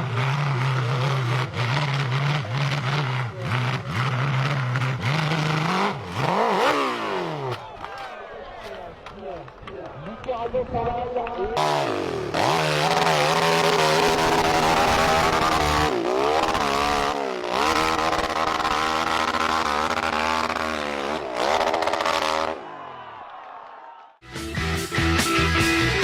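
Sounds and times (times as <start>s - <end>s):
motorcycle engine revving: 0.0s - 8.0s, 11.6s - 22.8s.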